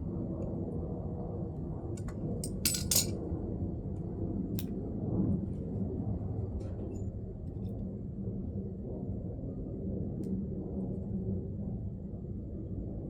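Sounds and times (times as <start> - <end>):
steady low hum: 0.0 - 13.0
metal tools clinking: 2.4 - 3.1.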